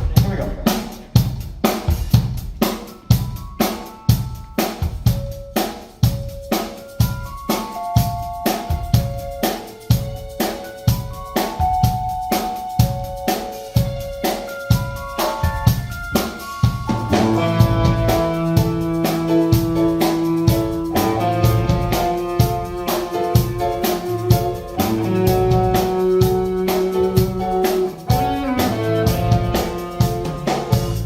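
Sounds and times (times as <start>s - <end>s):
drum kit steady beat: 0.0s - 31.0s
bass line: 15.4s - 31.0s
sustained chords: 16.9s - 31.0s.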